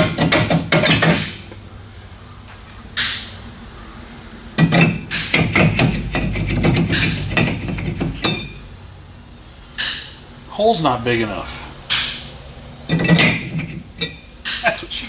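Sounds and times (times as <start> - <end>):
metal knocking and clanking: 0.0 - 1.6, 4.6 - 8.9, 12.9 - 14.8.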